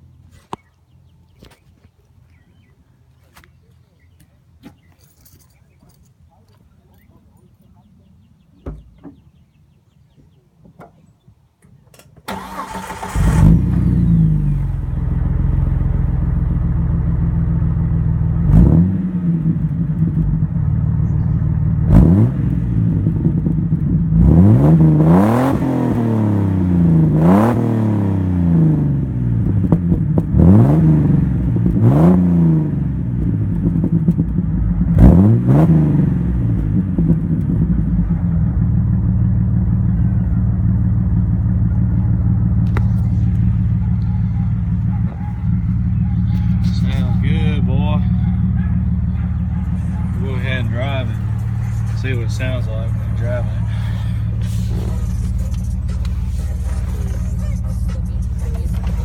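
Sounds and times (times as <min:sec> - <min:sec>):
engine starter cranking: 0:12.2 - 0:14.2
engine idling and revving: 0:12.3 - 0:59.0.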